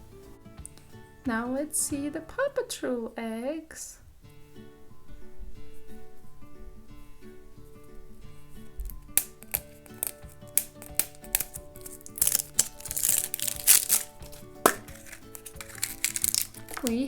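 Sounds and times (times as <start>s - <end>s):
acoustic guitar music: 0.0s - 17.0s
plastic egg clicking open: 8.8s - 17.0s
wrapper crinkling: 8.8s - 17.0s.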